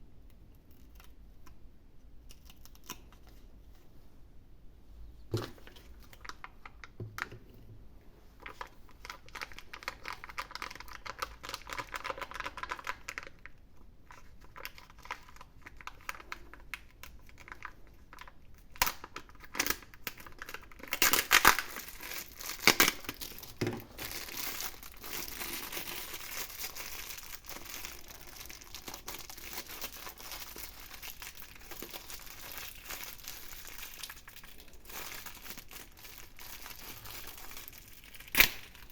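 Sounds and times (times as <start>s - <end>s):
foil wrapper crinkling: 8.4s - 38.9s.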